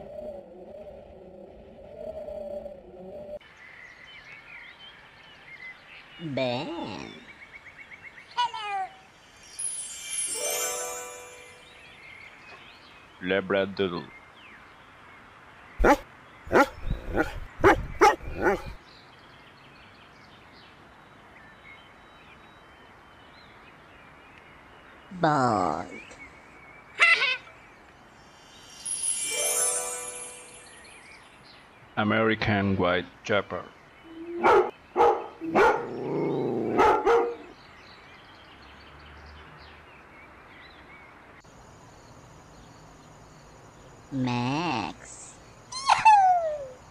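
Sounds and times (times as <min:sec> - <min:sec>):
bird chirps: 0:15.7 - 0:25.2, 0:25.8 - 0:32.2, 0:33.6 - 0:46.9
dog barking: 0:15.8 - 0:18.8, 0:34.4 - 0:36.0, 0:36.7 - 0:37.5.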